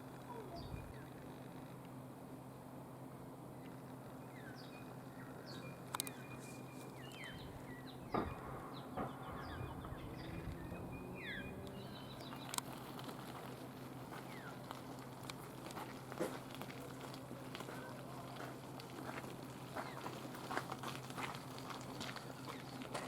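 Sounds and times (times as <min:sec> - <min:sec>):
steady low hum: 0:00.0 - 0:23.0
birds chirping and whistling: 0:04.2 - 0:12.6
sharp knocks: 0:08.1 - 0:09.5.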